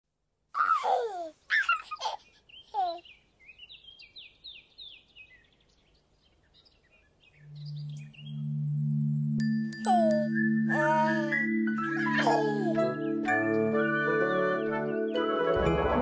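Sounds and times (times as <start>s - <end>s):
birds chirping and whistling: 1.5s - 9.1s, 9.7s - 15.6s
low steady musical note: 7.4s - 11.8s.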